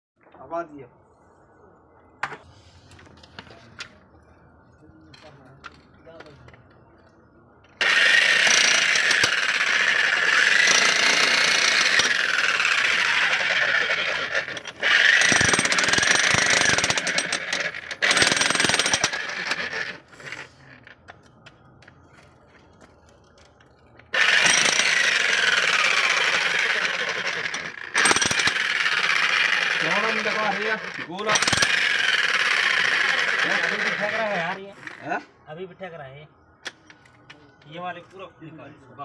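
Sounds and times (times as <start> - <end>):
jackhammer breaking ground: 7.8 - 20.0, 24.1 - 34.5.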